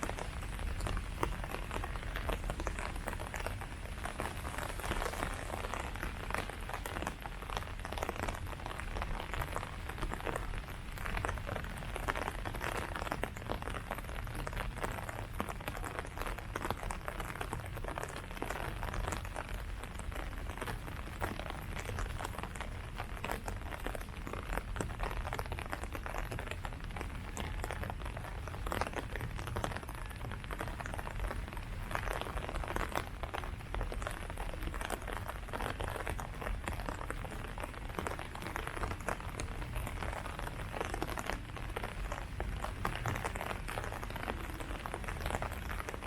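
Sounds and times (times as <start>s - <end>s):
rain falling on leaves: 0.0s - 46.0s.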